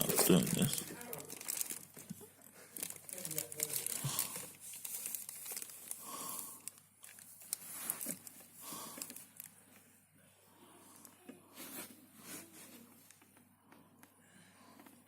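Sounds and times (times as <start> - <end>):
soft handling rustling: 6.6 - 10.1, 11.0 - 15.0.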